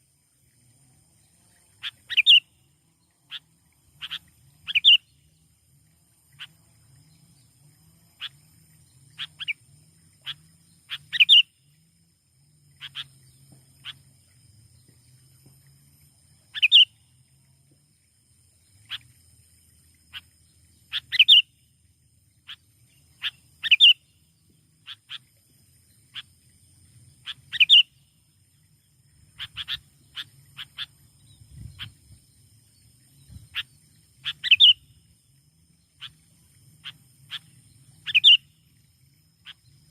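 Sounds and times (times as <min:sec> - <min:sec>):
bird chirping: 0:01.5 - 0:02.6, 0:03.3 - 0:05.4, 0:08.2 - 0:09.6, 0:10.2 - 0:11.6, 0:12.8 - 0:14.9, 0:16.5 - 0:17.0, 0:20.1 - 0:21.6, 0:22.4 - 0:24.2, 0:27.2 - 0:35.0, 0:36.8 - 0:38.6.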